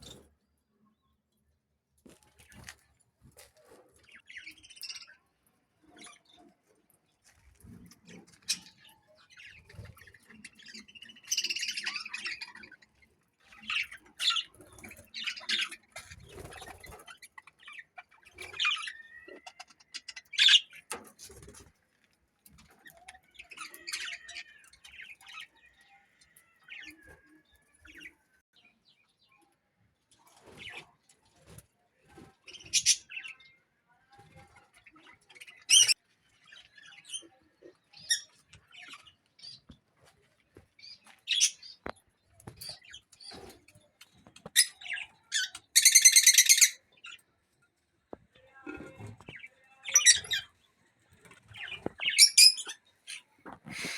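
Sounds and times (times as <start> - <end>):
parrots chirping and squawking: 8.1 - 20.9, 22.9 - 25.5, 35.4 - 36.0, 44.4 - 47.2, 49.3 - 50.6, 51.5 - 53.9.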